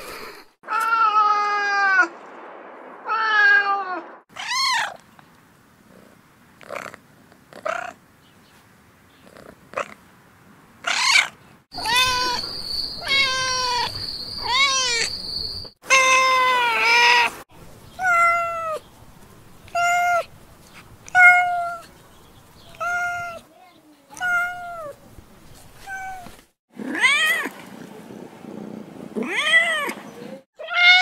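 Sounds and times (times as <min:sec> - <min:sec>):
cat meowing: 0:03.1 - 0:05.0, 0:10.8 - 0:12.4, 0:13.0 - 0:15.1, 0:21.1 - 0:21.8, 0:22.7 - 0:23.4, 0:24.2 - 0:25.0, 0:25.8 - 0:26.3, 0:29.2 - 0:30.0, 0:30.6 - 0:31.0.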